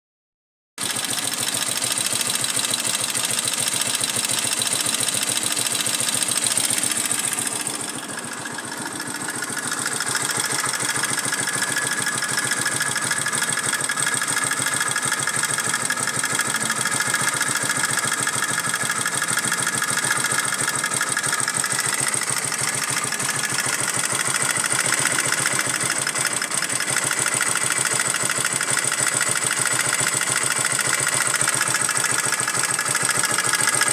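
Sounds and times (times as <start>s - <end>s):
motorcycle engine idling: 0.8s - 33.9s.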